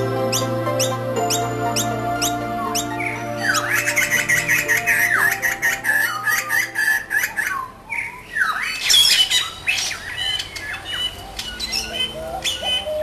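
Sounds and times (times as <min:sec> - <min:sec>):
soft background music: 0:00.0 - 0:08.1, 0:11.2 - 0:13.0
bird whistling and squawking: 0:00.3 - 0:13.0.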